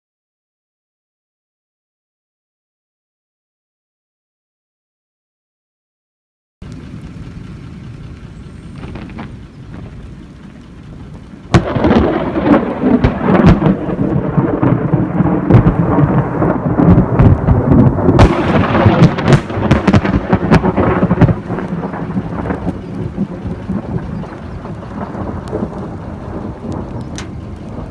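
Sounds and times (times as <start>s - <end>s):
rain falling: 6.6s - 27.9s
thunder cracking and rolling: 6.6s - 27.9s.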